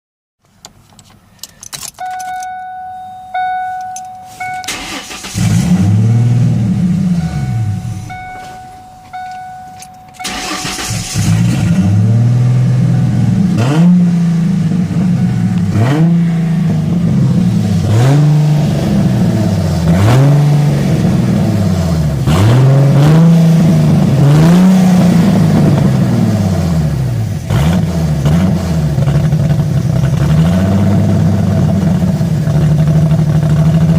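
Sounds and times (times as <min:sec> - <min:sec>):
car engine starting: 0:00.4 - 0:33.9
car warning chime: 0:01.5 - 0:21.5.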